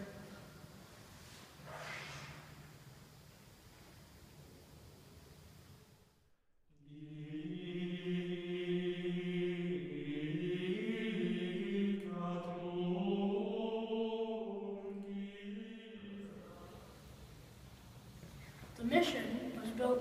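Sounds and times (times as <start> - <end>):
slow sung chant: 6.8 - 17.4.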